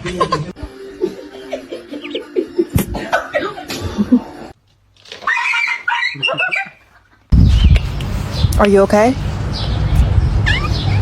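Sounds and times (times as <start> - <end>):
person chuckling: 0.0 - 4.5.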